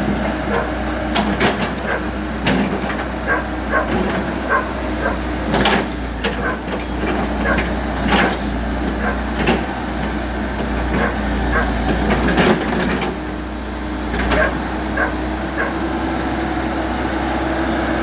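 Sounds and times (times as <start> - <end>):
sharp knocks and clanks: 0.0 - 13.4, 14.2 - 15.7
excavator diesel engine running: 0.0 - 18.0.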